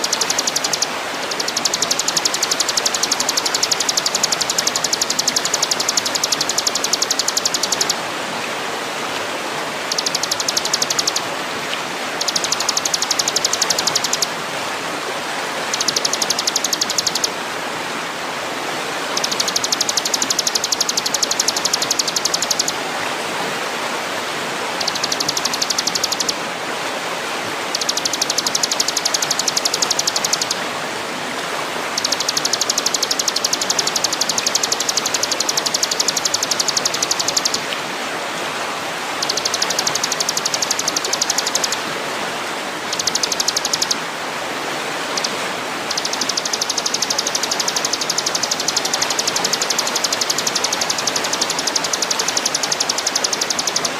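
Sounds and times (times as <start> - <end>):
high rapid ticking trill: 0.0 - 8.0, 9.8 - 11.2, 12.2 - 14.3, 15.7 - 17.3, 19.1 - 22.8, 24.8 - 26.3, 27.7 - 30.6, 31.9 - 37.6, 39.2 - 41.8, 42.9 - 44.0, 45.9 - 53.9.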